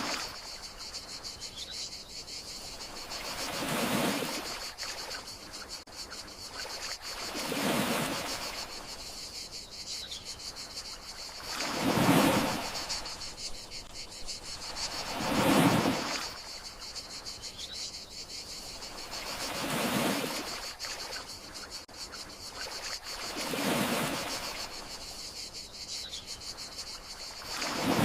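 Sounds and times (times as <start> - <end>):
sea waves washing onto shore: 0.0 - 0.5, 11.4 - 13.3, 14.7 - 16.5, 27.4 - 28.0
crickets trilling: 0.0 - 28.0.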